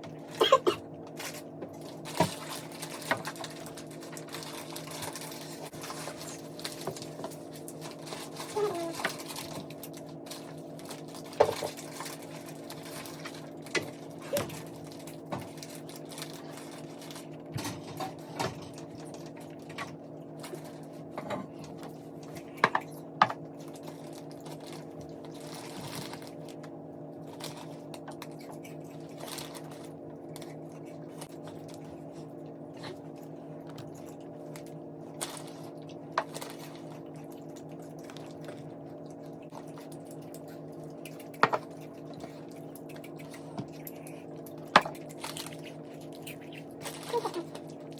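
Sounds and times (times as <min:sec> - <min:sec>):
steady low hum: 0:00.0 - 0:47.9
chewing mouth clicks and smacks: 0:35.7 - 0:47.9.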